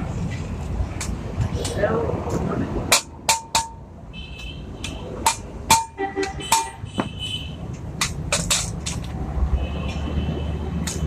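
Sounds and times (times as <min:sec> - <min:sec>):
hammer striking metal: 0:02.9 - 0:03.9, 0:05.2 - 0:07.1.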